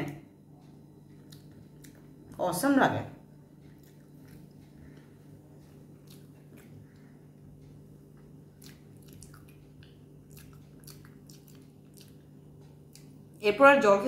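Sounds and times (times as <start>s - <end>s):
steady low hum: 0.0s - 14.0s
wet chewing and mouth clicks: 1.0s - 2.4s, 3.5s - 13.4s.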